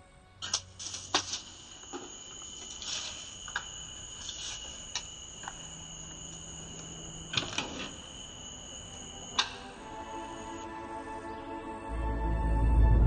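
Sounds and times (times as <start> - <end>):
crickets trilling: 0.1 - 12.0.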